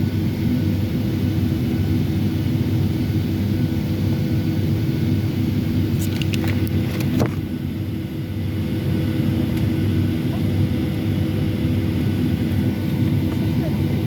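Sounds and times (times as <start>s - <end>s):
airliner cabin drone: 0.0s - 14.0s.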